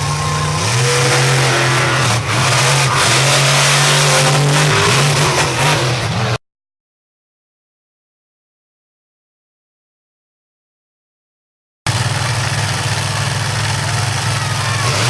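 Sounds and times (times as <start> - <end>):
monster truck engine revving: 0.0 - 6.4, 11.9 - 15.0.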